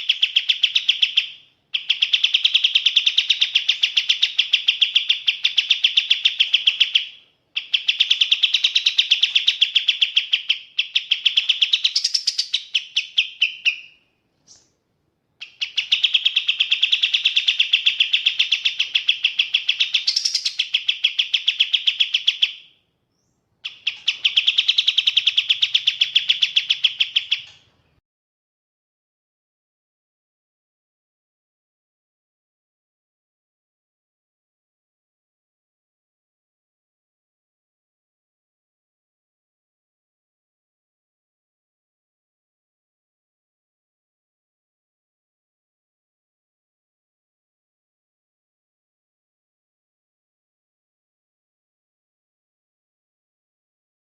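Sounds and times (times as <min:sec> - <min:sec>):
songbird chirping: 0:00.0 - 0:28.0.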